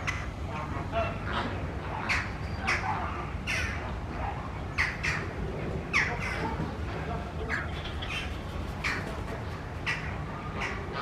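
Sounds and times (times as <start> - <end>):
low background rumble: 3.8 - 11.0
birds calling: 4.7 - 11.0.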